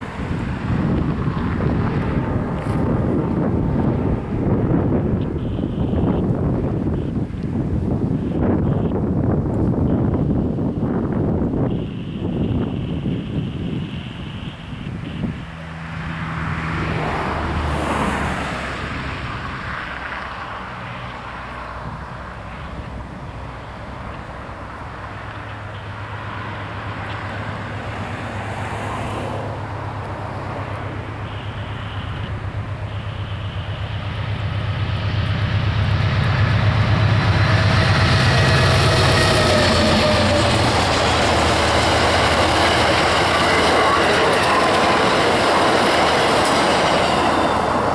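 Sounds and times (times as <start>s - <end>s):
diesel locomotive engine drone: 0.0s - 47.9s
train wheels rumbling on rail: 0.0s - 47.9s
faint high wheel squeal: 21.8s - 47.9s.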